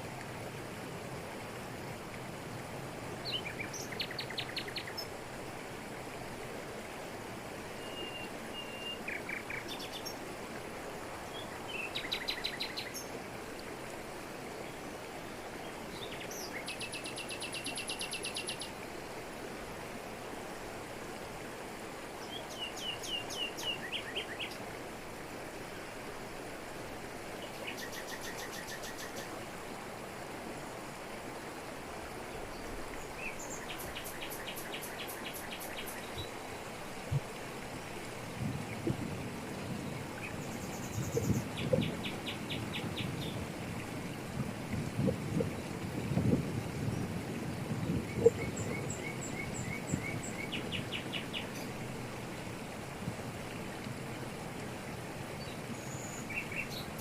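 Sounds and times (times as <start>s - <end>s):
waterfall falling over rocks: 17.4s - 57.0s.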